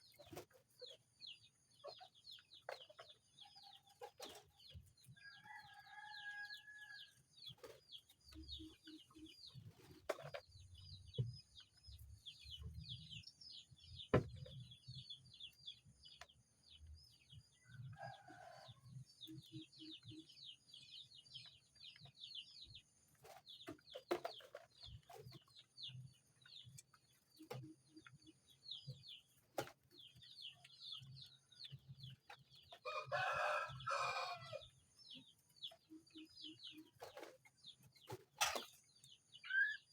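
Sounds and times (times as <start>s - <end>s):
chicks peeping: 0.0s - 39.9s
rooster crowing: 32.9s - 34.6s.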